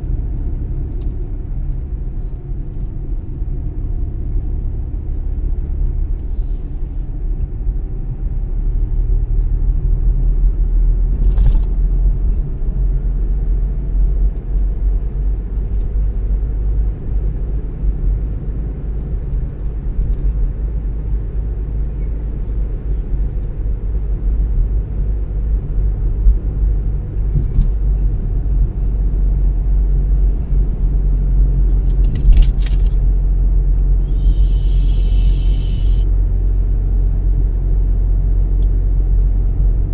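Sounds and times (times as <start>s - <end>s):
brief clicks or rattles: 31.7s - 33.1s
car road noise: 31.7s - 33.2s, 34.0s - 36.3s.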